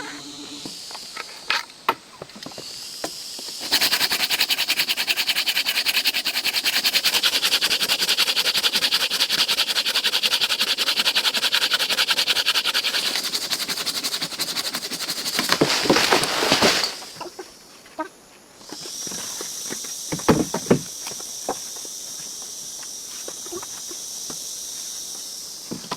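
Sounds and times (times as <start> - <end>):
high-pitched insect whine: 0.0 - 25.9
insect call in fast pulses: 0.0 - 25.9.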